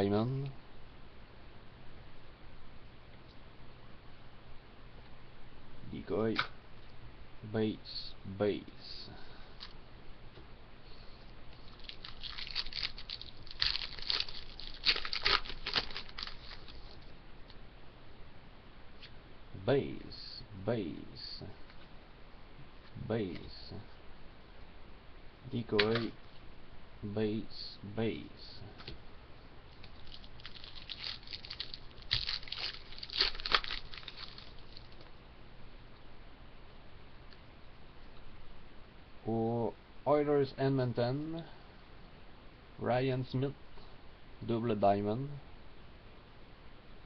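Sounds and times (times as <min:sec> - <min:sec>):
foil wrapper tearing and crinkling: 0:11.6 - 0:17.1, 0:29.8 - 0:35.0.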